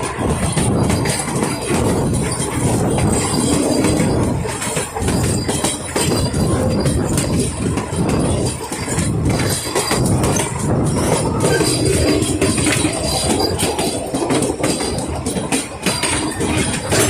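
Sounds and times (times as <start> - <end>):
steam train rumbling: 0.0 - 17.0
wheels clattering over rails: 0.0 - 17.0.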